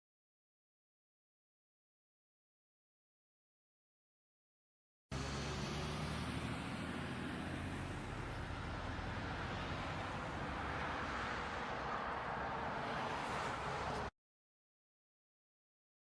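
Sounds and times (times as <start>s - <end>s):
vehicle engine and road noise: 5.1s - 14.1s.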